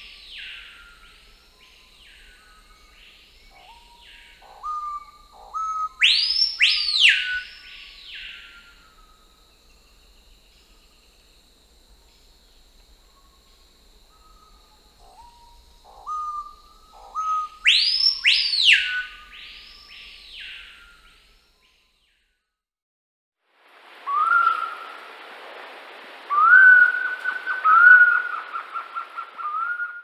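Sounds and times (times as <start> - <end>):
whistled bird calls: 0.0 - 9.1, 14.1 - 21.7, 24.0 - 25.0, 26.3 - 30.0.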